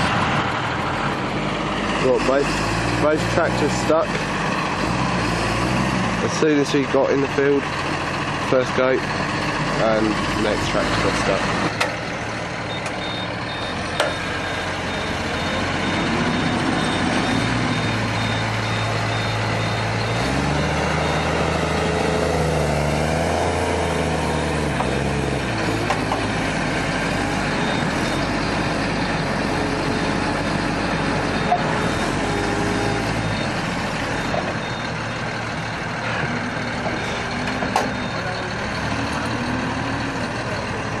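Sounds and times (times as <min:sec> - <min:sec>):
tractor engine running: 0:00.0 - 0:41.0.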